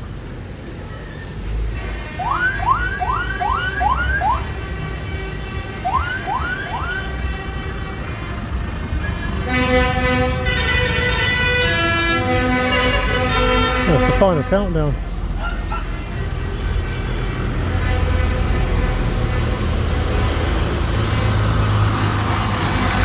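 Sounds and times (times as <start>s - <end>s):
low engine rumble: 0.7s - 23.0s
siren rising whoops: 2.2s - 4.5s, 5.9s - 7.1s
loud tune with stepped notes: 12.7s - 15.0s.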